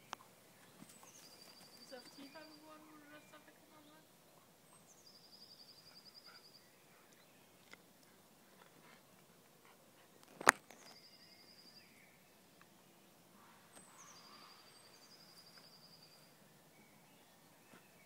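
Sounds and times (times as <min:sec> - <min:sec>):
small bird singing trill: 0:00.0 - 0:04.1, 0:04.7 - 0:07.6, 0:10.8 - 0:13.0, 0:13.8 - 0:18.0.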